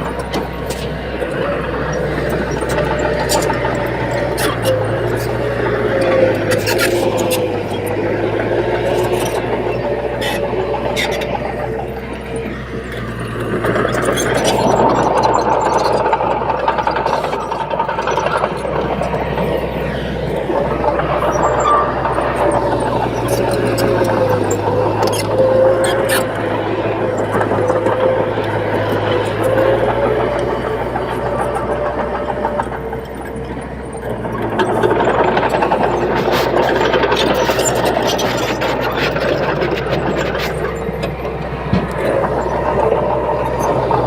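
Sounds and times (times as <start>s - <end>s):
bulldozer diesel engine running: 0.0s - 44.0s
bulldozer track clatter: 0.0s - 44.0s
clanks and rattles: 0.0s - 44.0s
high undercarriage squeal: 0.4s - 33.5s, 34.1s - 44.0s
lower squeal falling in pitch: 21.2s - 26.5s.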